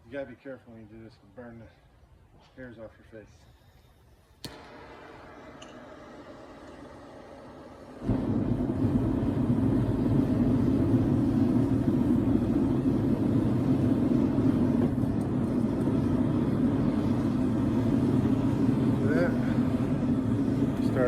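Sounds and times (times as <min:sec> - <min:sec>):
forge burner rushing: 0:04.4 - 0:21.0.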